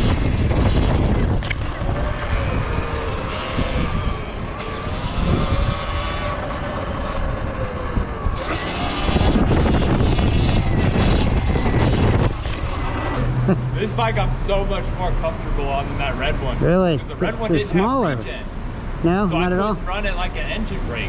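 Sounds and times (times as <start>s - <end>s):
electric dirt bike motor whining: 0.0s - 13.6s
wind buffeting on microphone: 0.0s - 19.0s.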